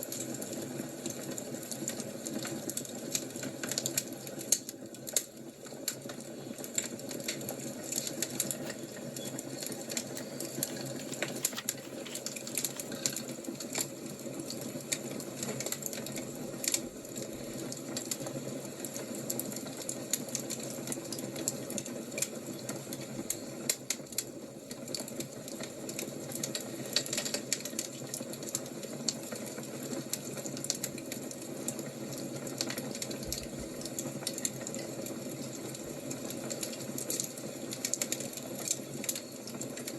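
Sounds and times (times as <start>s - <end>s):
fire crackling and popping: 2.8s - 15.0s.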